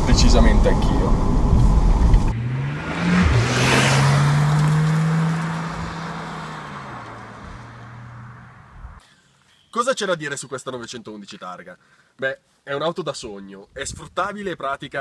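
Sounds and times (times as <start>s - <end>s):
car engine accelerating: 0.0s - 9.0s
wind and road rumble: 0.0s - 9.0s.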